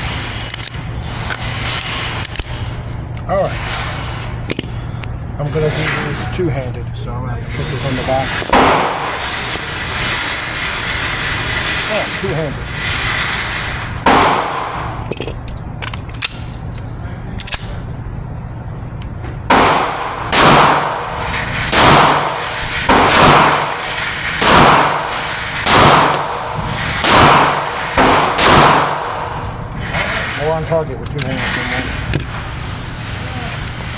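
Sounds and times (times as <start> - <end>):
pistol shots: 8.5 - 9.1, 14.0 - 15.0, 19.5 - 29.4.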